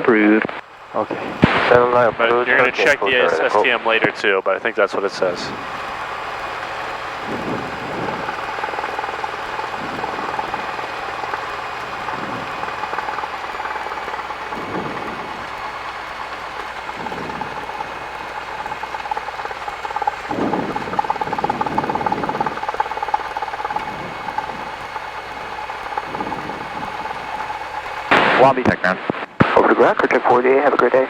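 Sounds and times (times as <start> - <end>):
intercom hiss: 0.0 - 6.5
small plane engine running: 0.0 - 31.0.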